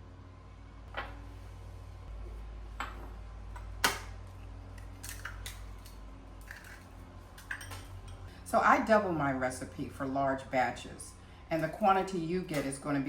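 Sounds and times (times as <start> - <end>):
kitchen utensils and dishes clicking: 5.0 - 8.2.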